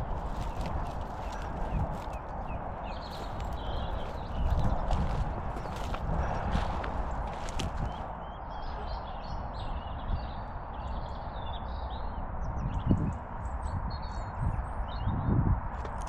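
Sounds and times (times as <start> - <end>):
footsteps through field cover: 0.0 - 8.1
small birds chirping: 0.0 - 15.3.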